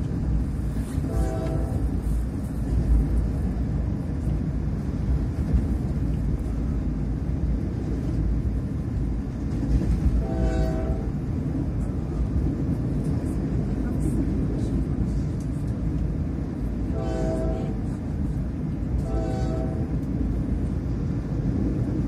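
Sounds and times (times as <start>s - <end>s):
train rumbling: 0.0s - 22.0s
train horn blast: 0.9s - 2.2s, 10.1s - 11.2s, 16.9s - 18.0s, 19.0s - 20.0s.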